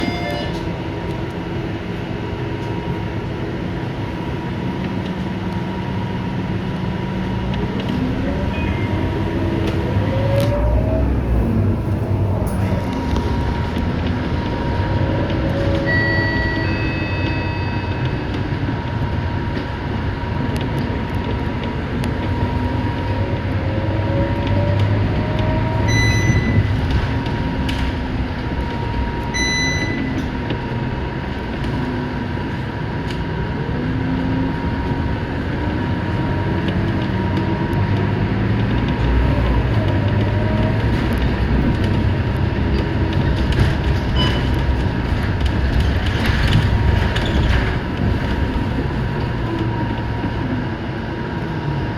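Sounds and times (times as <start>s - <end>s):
short electronic beeps: 0.0s - 0.6s, 15.8s - 18.0s, 25.9s - 26.7s, 29.3s - 30.2s
bus engine and road noise: 0.0s - 51.9s.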